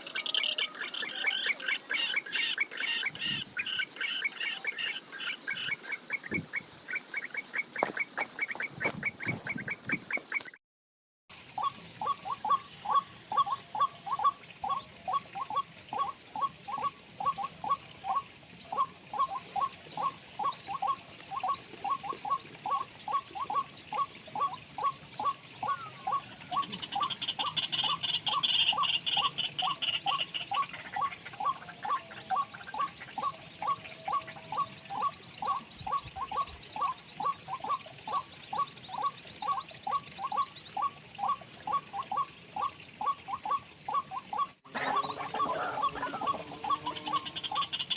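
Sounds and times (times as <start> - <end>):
higher chattering bird call: 11.6 - 47.9.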